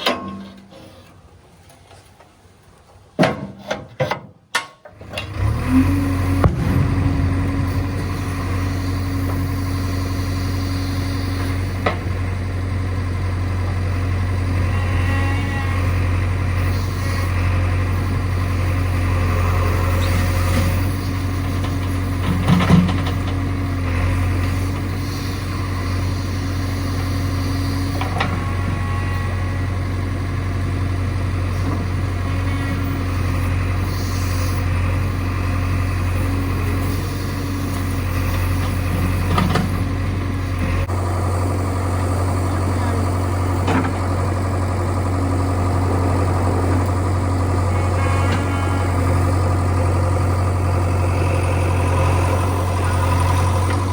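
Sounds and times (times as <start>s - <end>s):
diesel engine running: 5.0s - 53.9s.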